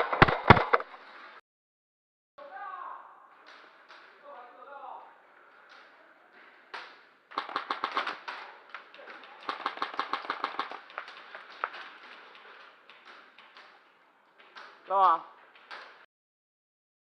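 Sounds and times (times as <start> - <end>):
airsoft guns firing clicks: 5.6 - 16.1.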